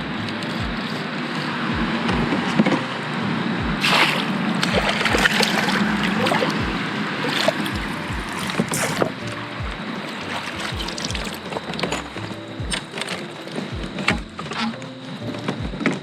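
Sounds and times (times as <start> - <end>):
water splashing and sloshing: 3.7 - 16.0
fish thrashing in water: 3.8 - 14.8
soft low knocks: 4.6 - 6.9, 7.7 - 13.0, 13.7 - 14.6.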